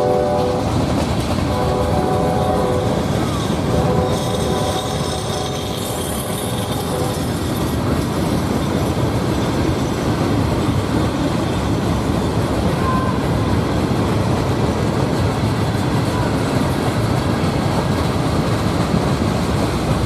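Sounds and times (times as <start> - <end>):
train horn: 0.0 - 7.5
train rumbling on track: 0.0 - 20.0.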